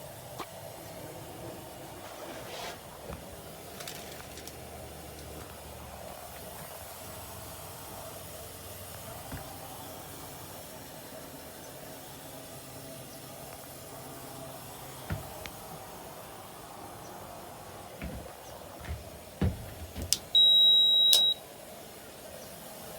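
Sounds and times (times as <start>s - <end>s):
washing machine running: 14.9s - 21.4s
soft knock: 15.1s - 15.5s, 18.0s - 20.4s.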